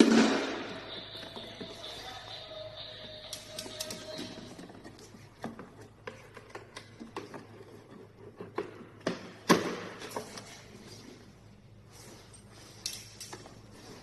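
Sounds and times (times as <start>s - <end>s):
tools and parts clicking: 3.2s - 5.0s, 12.8s - 13.6s.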